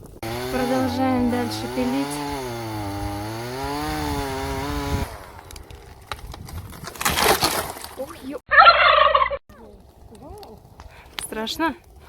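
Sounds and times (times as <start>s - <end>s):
chainsaw cutting wood: 0.0s - 7.6s
tree crashing down: 0.2s - 8.1s
wood cracking: 1.3s - 8.2s.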